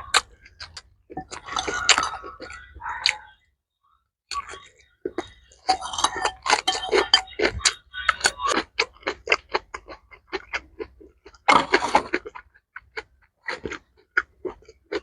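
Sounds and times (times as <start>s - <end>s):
wet chewing and mouth clicks: 12.2s - 15.0s.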